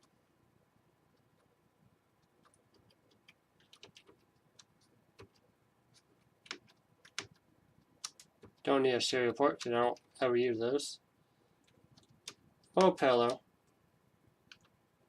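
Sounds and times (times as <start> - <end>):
computer mouse and keyboard clicks: 2.2 - 8.7, 11.6 - 13.8, 14.4 - 14.8.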